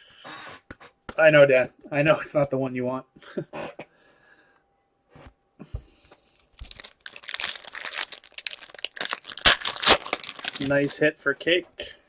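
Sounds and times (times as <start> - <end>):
foil wrapper crinkling and tearing: 6.6 - 11.0.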